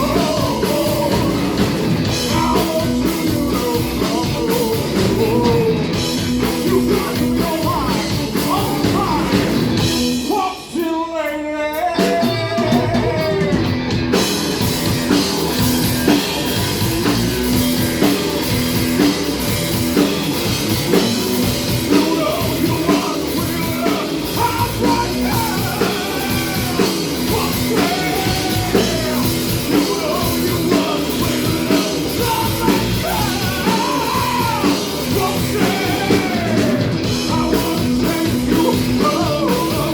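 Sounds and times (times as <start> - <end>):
person singing: 0.0 - 9.5, 10.2 - 13.8, 21.7 - 39.9
rock band playing: 0.0 - 39.9.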